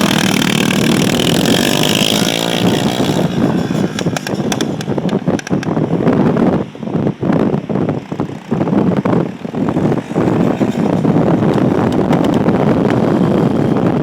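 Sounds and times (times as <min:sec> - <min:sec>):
motorcycle engine revving hard: 0:00.0 - 0:04.9, 0:08.1 - 0:14.0.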